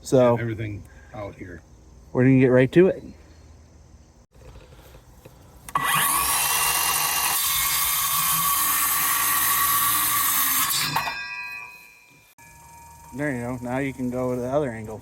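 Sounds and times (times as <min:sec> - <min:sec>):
power drill drilling into wood: 0:05.7 - 0:11.1.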